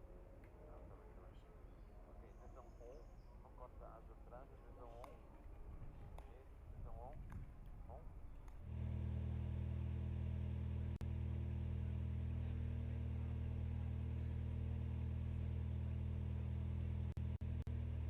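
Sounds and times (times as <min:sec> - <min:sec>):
race car engine running: 0:07.8 - 0:18.0.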